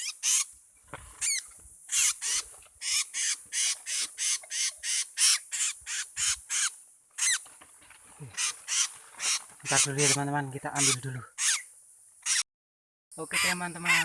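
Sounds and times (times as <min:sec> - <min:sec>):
bird giving harsh raspy calls: 0:00.0 - 0:00.6, 0:01.2 - 0:07.5, 0:08.2 - 0:12.5, 0:13.2 - 0:14.0.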